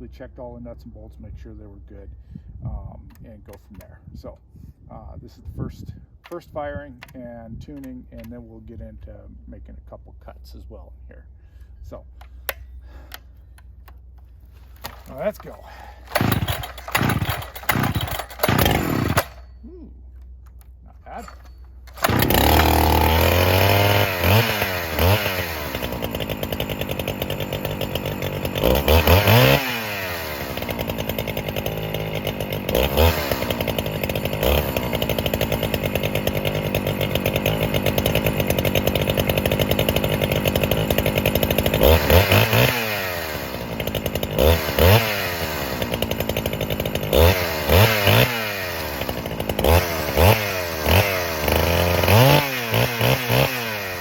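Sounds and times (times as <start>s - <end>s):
chainsaw engine revving: 14.6s - 19.8s, 20.5s - 54.0s.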